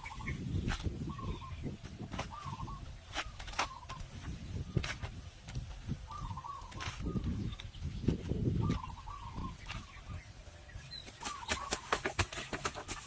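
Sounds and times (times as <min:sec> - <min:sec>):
short wavering bird calls: 0:00.0 - 0:04.8, 0:06.0 - 0:07.6, 0:08.6 - 0:11.9.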